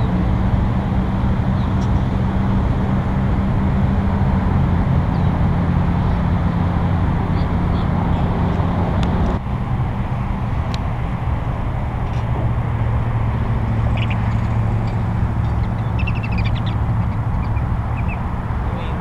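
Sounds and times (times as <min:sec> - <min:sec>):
low rumble with hum: 0:00.0 - 0:19.0
faint bird chirps: 0:13.9 - 0:18.2.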